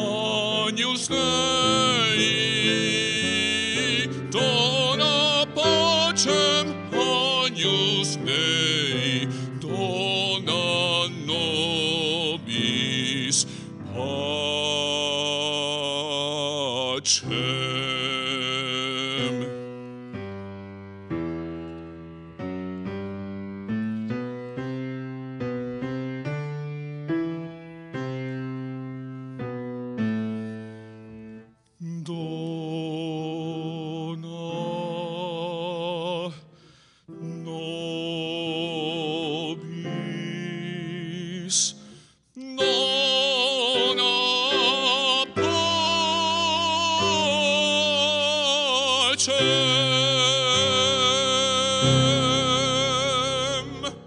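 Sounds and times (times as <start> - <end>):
man singing with vibrato: 0.0 - 20.1, 31.7 - 54.0
grand piano: 0.0 - 54.0.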